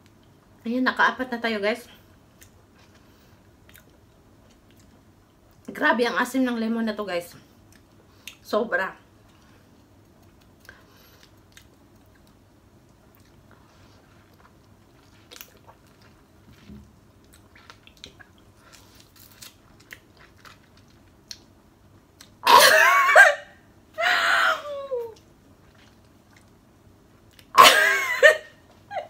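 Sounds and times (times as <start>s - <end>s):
person chewing lemon: 2.4s - 5.0s, 9.2s - 21.5s
person crying out: 22.5s - 25.2s.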